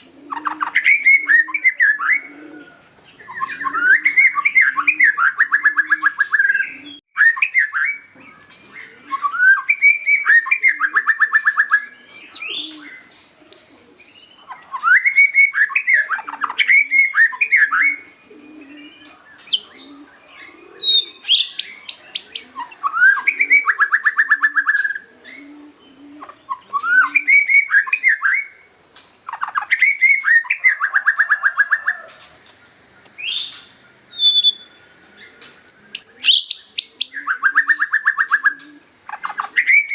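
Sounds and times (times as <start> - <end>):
bird singing whistled phrases: 0.3 - 2.3, 3.2 - 8.1, 8.8 - 25.5, 26.5 - 28.6, 33.2 - 34.8.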